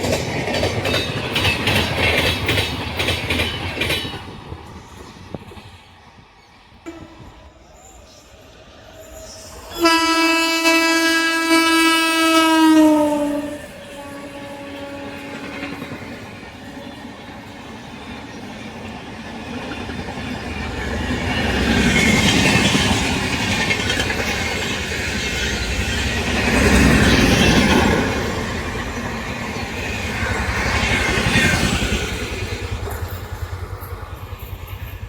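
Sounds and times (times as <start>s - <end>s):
train wheels clattering over rail joints: 0.0s - 5.8s, 15.4s - 35.0s
train horn: 6.9s - 7.6s, 9.6s - 17.2s.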